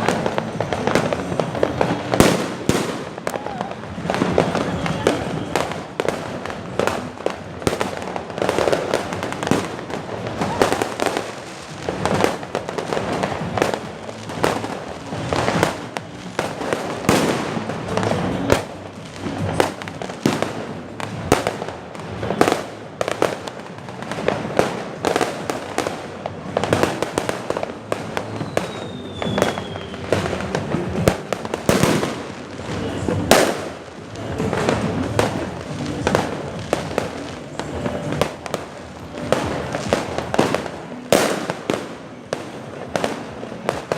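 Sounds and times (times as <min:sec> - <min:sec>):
fireworks bangs and crackling: 0:00.0 - 0:43.9
falling firework whistle: 0:28.2 - 0:30.4.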